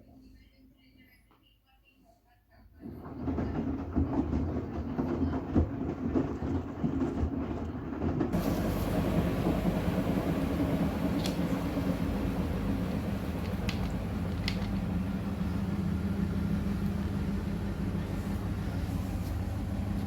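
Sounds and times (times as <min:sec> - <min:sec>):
washing machine drum rumbling: 0:03.1 - 0:20.0.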